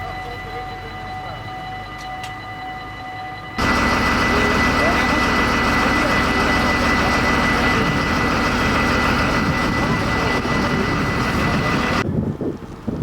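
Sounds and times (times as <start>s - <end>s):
high whine: 0.0s - 12.0s
large engine running: 3.6s - 13.0s.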